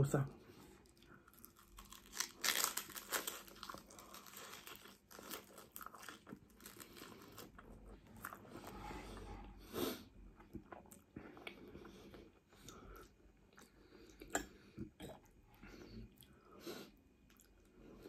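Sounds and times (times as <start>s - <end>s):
crunching cracker: 1.0s - 8.4s.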